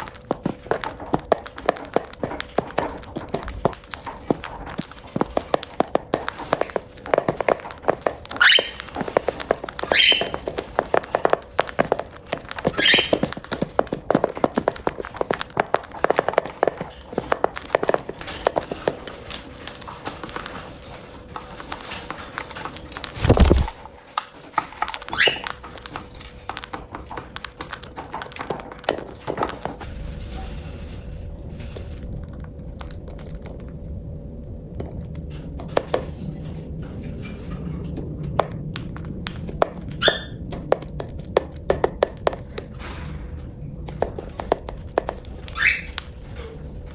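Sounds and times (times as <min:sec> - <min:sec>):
beaks clicking on food: 0:00.0 - 0:29.9, 0:38.3 - 0:43.2, 0:43.8 - 0:46.3
bird chirps: 0:08.3 - 0:09.0, 0:09.8 - 0:10.6, 0:12.6 - 0:13.4, 0:25.1 - 0:25.6, 0:45.5 - 0:46.0.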